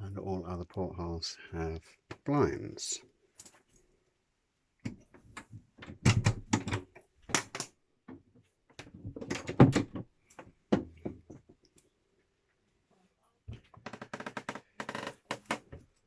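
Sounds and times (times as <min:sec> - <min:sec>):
rapid clicks and knocks: 0:04.8 - 0:11.5.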